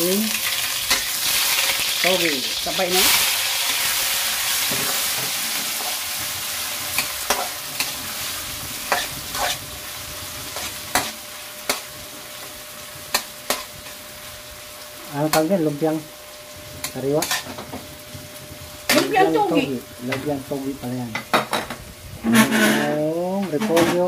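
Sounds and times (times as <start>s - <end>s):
vegetables sizzling in hot oil: 0.0s - 23.7s
spatula scraping and knocking pan: 6.9s - 8.0s, 21.2s - 23.0s.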